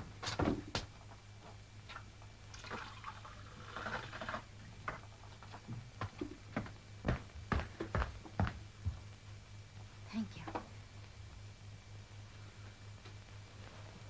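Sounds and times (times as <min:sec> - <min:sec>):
low film soundtrack hum: 0:00.0 - 0:14.0
water filling a glass: 0:02.5 - 0:04.4.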